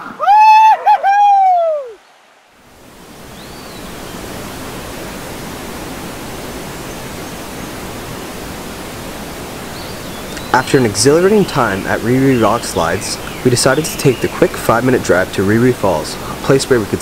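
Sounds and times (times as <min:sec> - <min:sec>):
water rushing over rock ledges: 0:01.9 - 0:17.0.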